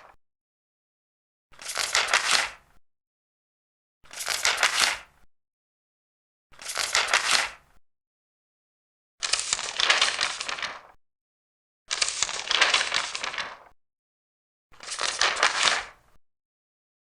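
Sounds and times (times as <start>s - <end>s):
paper pages turning: 1.6s - 2.6s, 4.1s - 5.1s, 6.6s - 7.6s, 9.2s - 11.0s, 11.9s - 13.7s, 14.8s - 16.0s.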